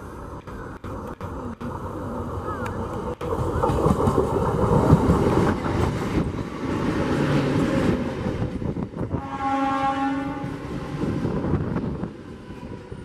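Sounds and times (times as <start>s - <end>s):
train passing at speed: 0.0s - 13.0s
wheels clacking over rail joints: 0.3s - 9.0s
train horn: 9.1s - 10.7s.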